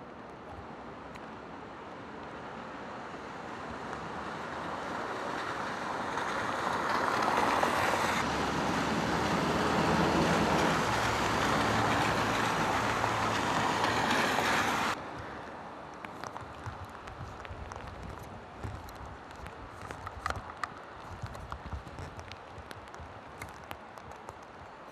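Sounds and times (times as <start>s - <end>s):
tyres hissing on wet road: 1.4s - 16.3s
low engine hum: 5.9s - 15.2s.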